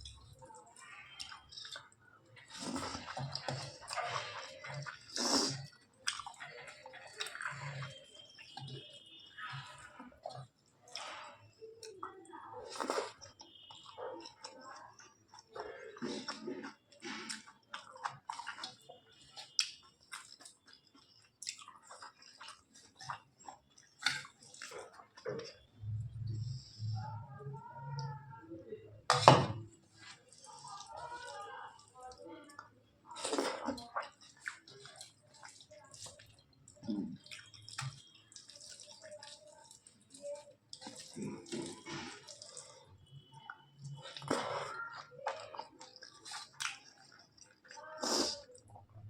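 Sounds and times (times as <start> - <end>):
chewing food: 0.0 - 27.2, 29.1 - 49.0
wet mouth sounds: 4.7 - 8.9, 40.7 - 48.8.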